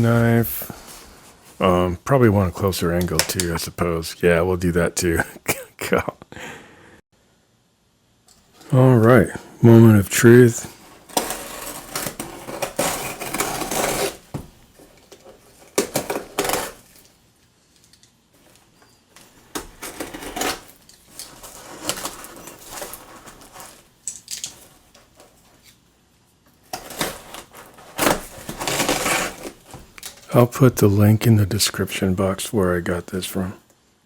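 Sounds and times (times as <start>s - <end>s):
knife cutting cardboard box: 10.3s - 14.2s, 15.7s - 16.9s, 19.5s - 23.9s, 26.7s - 29.7s.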